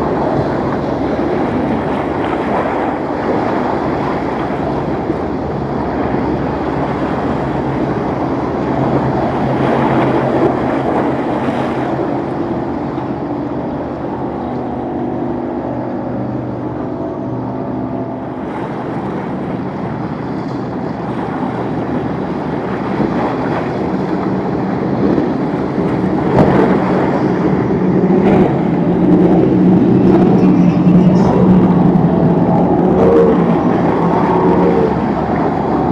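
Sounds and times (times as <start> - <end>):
motorboat engine hum: 0.0 - 35.9
waves: 0.0 - 35.9
wind on microphone: 0.0 - 35.9.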